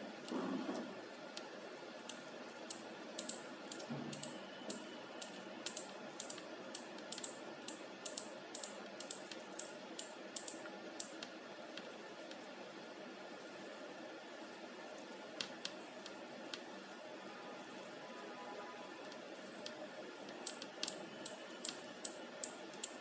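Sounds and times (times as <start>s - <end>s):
sharp light mechanical clicks: 1.3s - 12.4s, 15.4s - 16.7s, 19.0s - 23.0s.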